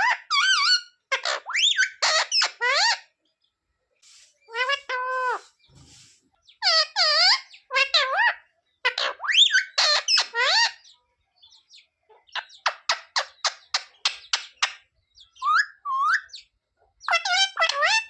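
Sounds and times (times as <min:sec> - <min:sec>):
parrot calling: 0:00.0 - 0:03.1, 0:04.1 - 0:05.6, 0:06.6 - 0:10.9.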